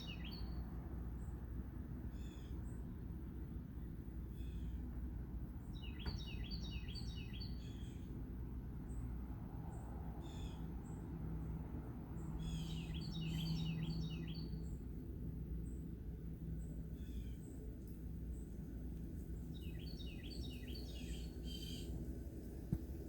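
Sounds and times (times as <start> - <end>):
birds chirping: 0.0 - 0.6, 5.6 - 8.0, 12.1 - 14.9, 16.6 - 22.8
steady low hum: 0.0 - 6.0, 6.7 - 23.0.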